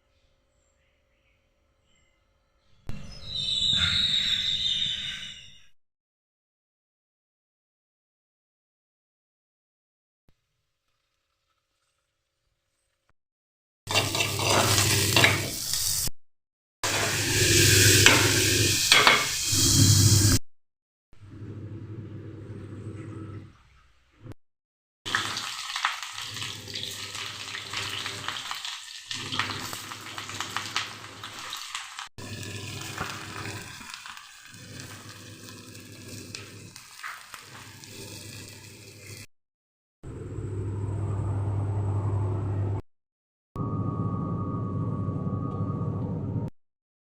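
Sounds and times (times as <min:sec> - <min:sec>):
food sizzling in a pan: 0:13.9 - 0:16.1, 0:16.8 - 0:20.4, 0:25.1 - 0:39.3.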